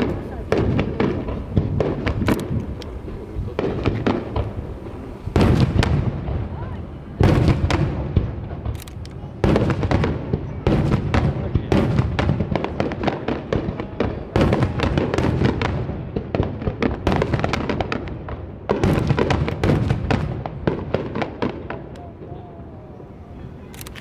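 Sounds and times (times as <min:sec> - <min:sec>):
fireworks shells bursting: 0:00.0 - 0:10.2
fireworks crackle: 0:00.0 - 0:24.0.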